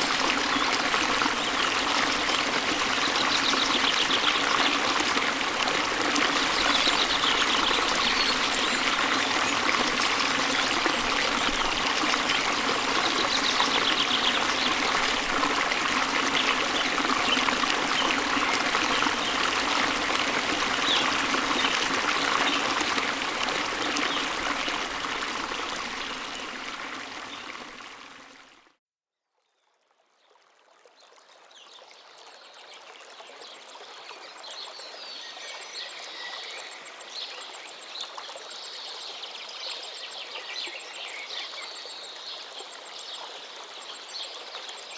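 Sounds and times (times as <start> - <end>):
stream flowing: 0.0 - 28.7.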